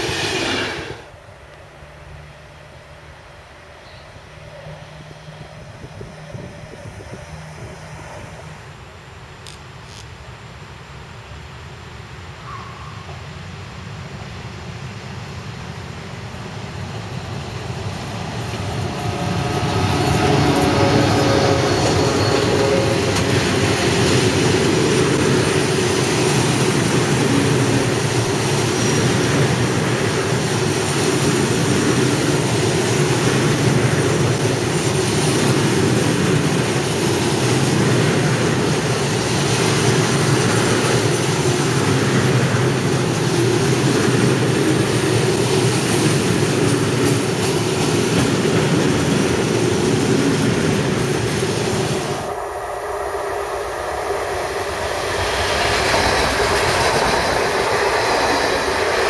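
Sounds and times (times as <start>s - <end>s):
steel wheels rolling on rails: 16.8s - 59.0s.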